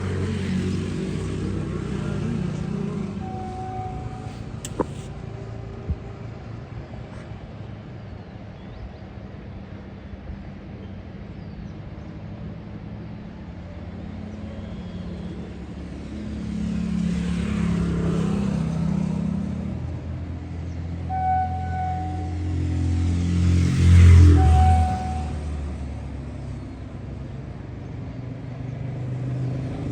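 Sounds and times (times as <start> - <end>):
vehicle passing: 0.0 - 7.8, 13.5 - 21.0, 21.6 - 29.9
deep engine rumble: 0.0 - 29.9
short steady pitched tone: 3.2 - 4.8.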